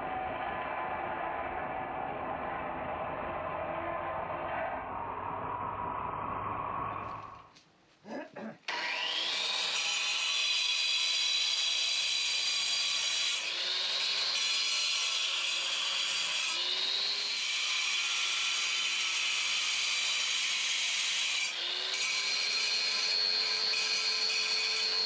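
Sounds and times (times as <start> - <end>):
angle grinder cutting masonry: 8.7 - 25.0.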